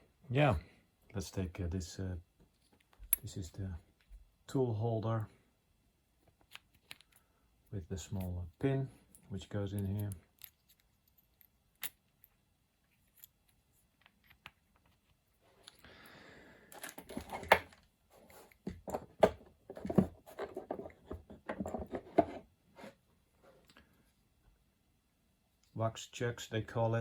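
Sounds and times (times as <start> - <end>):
metal parts clicking and clinking: 6.4 - 7.2, 9.0 - 15.0, 16.7 - 17.6.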